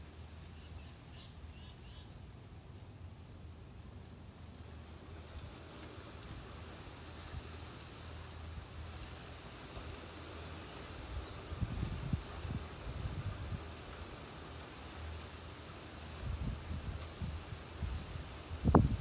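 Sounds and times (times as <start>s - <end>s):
bird chirping: 0.2s - 2.2s.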